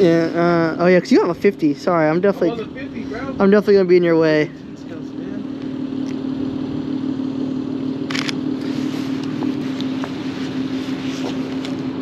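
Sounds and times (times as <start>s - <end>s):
car engine idling: 0.0s - 12.0s
camera shutter click: 8.1s - 8.4s.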